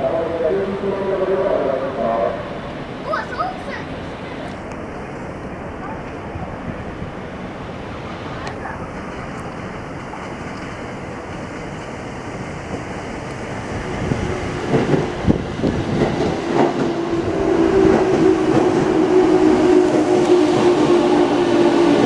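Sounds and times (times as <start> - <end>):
electric train arriving: 0.0 - 22.0
train hum: 0.0 - 22.0
train wheels clacking on rail joints: 14.5 - 17.1.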